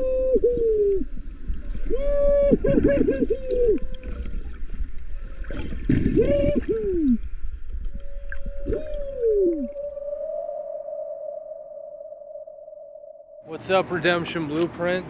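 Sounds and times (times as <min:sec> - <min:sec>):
low rumble of water: 0:00.0 - 0:13.4
whale song underwater: 0:00.0 - 0:13.5.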